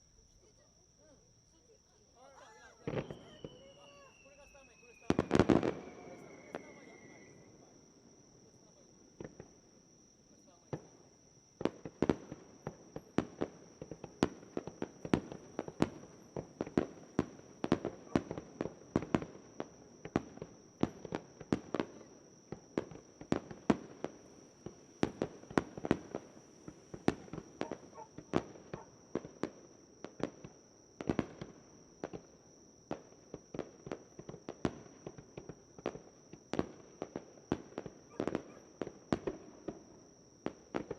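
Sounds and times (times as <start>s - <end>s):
high-pitched insect trill: 0.0s - 25.1s
fireworks bangs and cracks: 2.8s - 9.6s, 11.6s - 40.9s.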